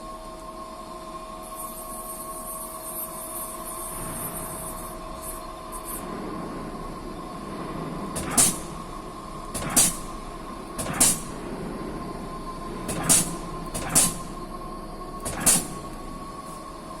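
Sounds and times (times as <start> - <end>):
constant whine: 0.0 - 17.0
lathe machine hum: 3.4 - 17.0
short hissing bursts: 8.2 - 11.5, 12.8 - 14.4, 15.2 - 16.7.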